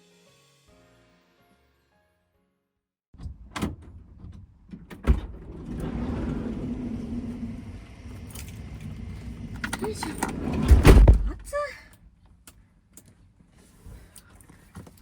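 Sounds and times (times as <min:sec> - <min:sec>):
van door clicks and knocks: 0:10.6 - 0:11.4
loud thump: 0:10.6 - 0:11.5.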